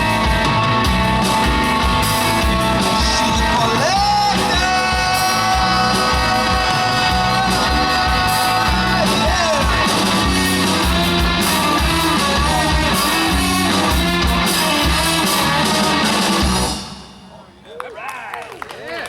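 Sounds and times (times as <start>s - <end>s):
electric guitar: 0.0s - 16.8s
bass guitar: 0.0s - 17.0s
drum kit: 0.0s - 17.7s
person shouting vocals: 3.7s - 9.8s.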